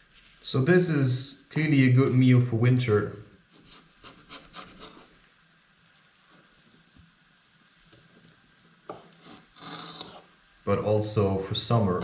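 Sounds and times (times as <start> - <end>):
food frying in a pan: 5.0 - 12.0.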